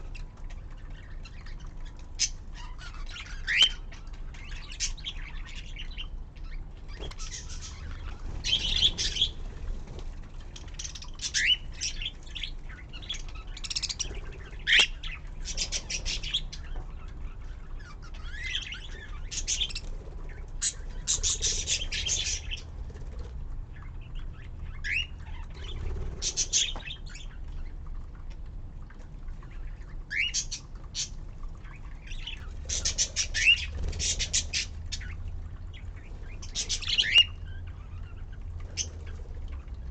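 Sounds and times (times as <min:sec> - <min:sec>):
budgerigars chirping and chattering: 0:00.1 - 0:10.0, 0:10.6 - 0:22.7, 0:23.8 - 0:27.7, 0:31.7 - 0:38.2.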